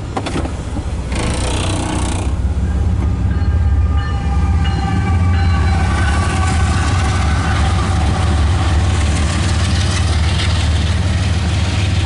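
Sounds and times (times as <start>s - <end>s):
locomotive engine rumble: 0.0s - 12.0s.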